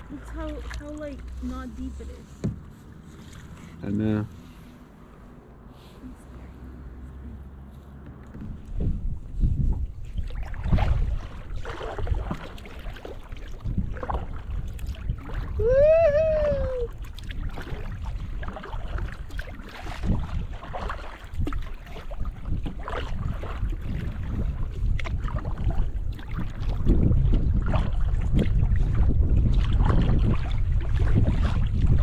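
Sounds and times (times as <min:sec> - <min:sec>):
paddle splashing in water: 0:00.0 - 0:32.0
wind on microphone: 0:08.3 - 0:32.0.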